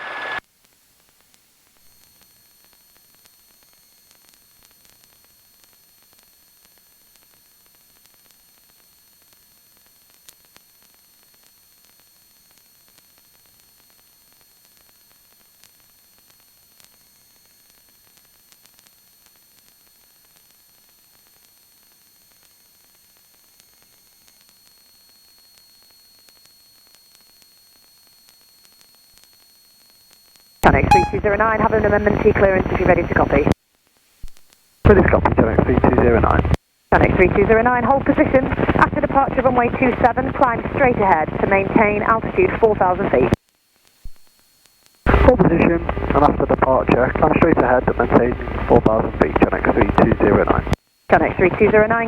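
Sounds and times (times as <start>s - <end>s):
radio static hiss: 0.0s - 0.4s, 30.6s - 33.6s, 34.9s - 43.4s, 45.1s - 52.0s.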